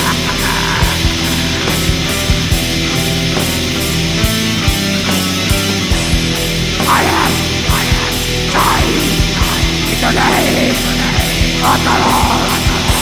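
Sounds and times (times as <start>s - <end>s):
shrieked vocals: 0.0s - 2.4s, 6.8s - 13.0s
distorted electric guitars: 0.0s - 13.0s
drums with kick and cymbals: 0.0s - 13.0s.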